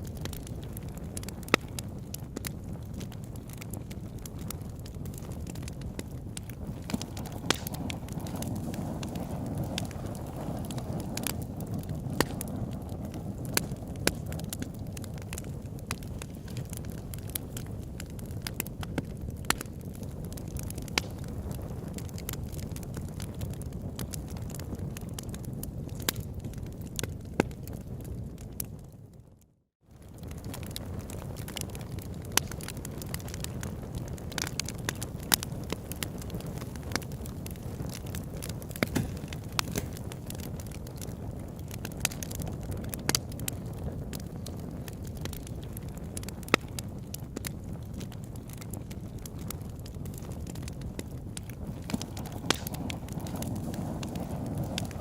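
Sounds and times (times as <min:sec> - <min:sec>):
campfire crackling: 0:00.0 - 0:29.3, 0:29.9 - 0:55.0
wood pops: 0:38.8 - 0:40.0.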